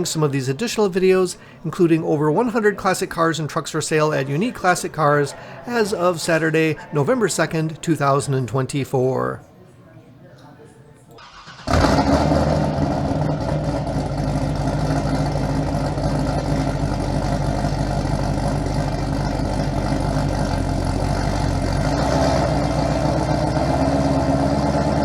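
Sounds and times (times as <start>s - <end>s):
car engine idling: 11.3s - 25.0s.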